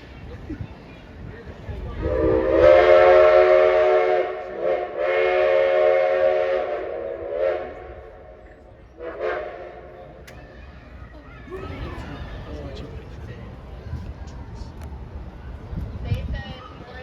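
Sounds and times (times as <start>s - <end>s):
steam locomotive chime whistle: 2.0s - 8.1s.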